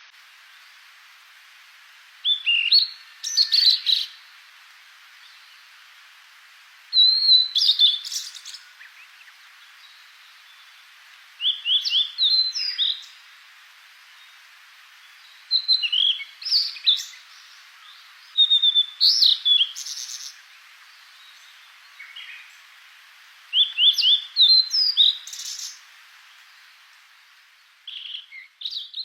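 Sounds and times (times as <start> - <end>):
steady hiss: 0.0 - 29.0
songbird chirping and trilling: 2.2 - 4.3, 6.9 - 13.2, 15.0 - 22.7, 23.5 - 26.9, 27.6 - 29.0.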